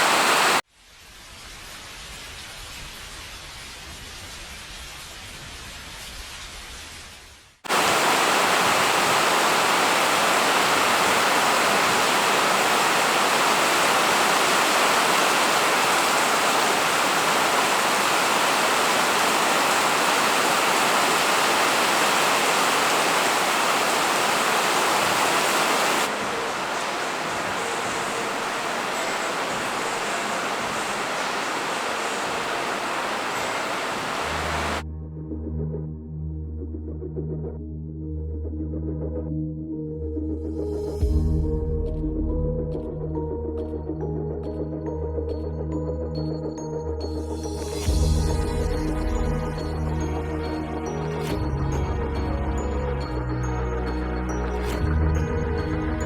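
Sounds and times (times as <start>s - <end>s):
heavy rain pouring: 0.0s - 0.6s, 7.7s - 34.8s.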